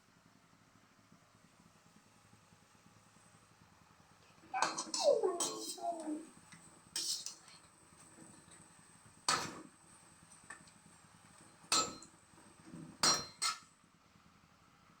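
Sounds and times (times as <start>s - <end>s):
metal utensils clinking on dishes: 4.6s - 6.2s, 7.0s - 7.5s.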